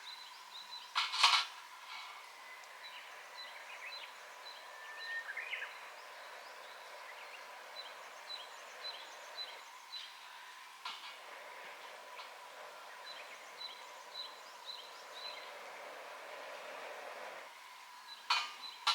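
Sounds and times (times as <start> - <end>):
birds chirping: 11.6 - 16.2.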